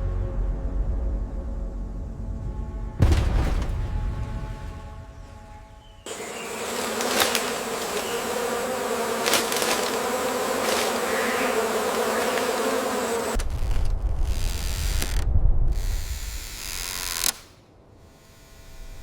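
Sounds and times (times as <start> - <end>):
steady buzzing: 4.4 - 13.4.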